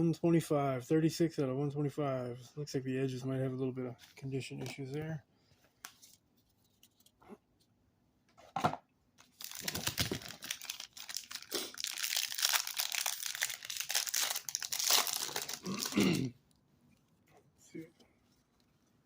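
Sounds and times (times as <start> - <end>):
plastic wrapper tearing and crinkling: 9.2 - 16.0.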